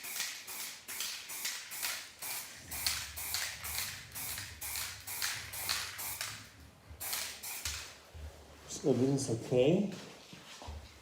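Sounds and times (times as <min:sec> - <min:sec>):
spray can hissing bursts: 0:00.0 - 0:07.9.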